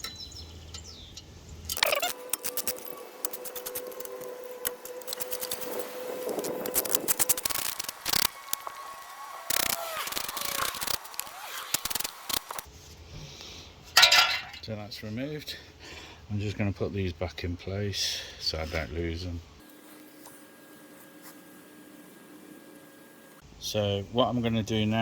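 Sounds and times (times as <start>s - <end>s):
metal scraping and rubbing: 1.7s - 8.7s, 9.5s - 12.8s.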